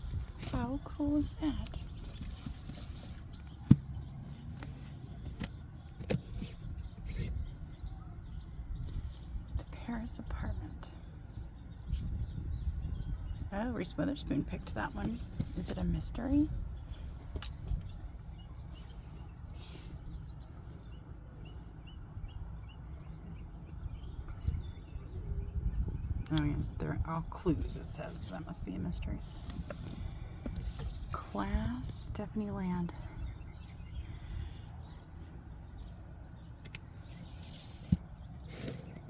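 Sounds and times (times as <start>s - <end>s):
low steady rumble: 0.0s - 39.0s
sharp handling clicks and knocks: 1.6s - 7.3s.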